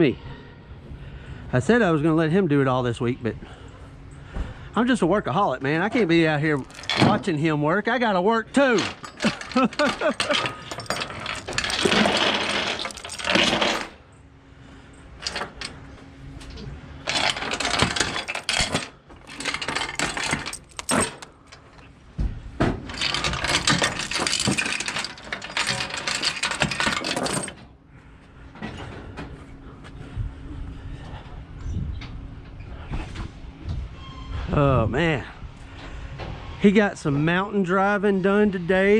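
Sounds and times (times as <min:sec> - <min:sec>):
metal gear rattling and clinking: 0:06.5 - 0:07.4, 0:08.6 - 0:14.0, 0:15.2 - 0:15.8, 0:17.0 - 0:21.8, 0:22.9 - 0:27.6.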